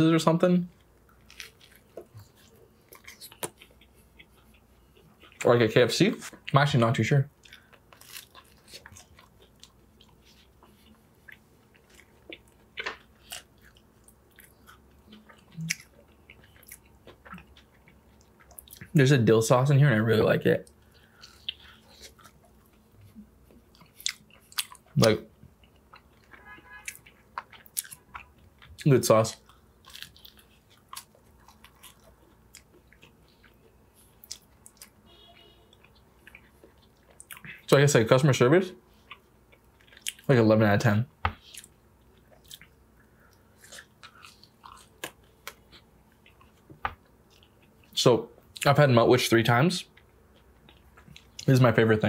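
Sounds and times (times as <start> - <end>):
person chewing food: 0.7 - 5.5, 7.3 - 19.0, 20.6 - 37.7, 38.9 - 40.3, 41.3 - 48.6, 49.9 - 51.5
crunching crisp bread: 0.9 - 4.6, 7.4 - 19.0, 23.6 - 34.9.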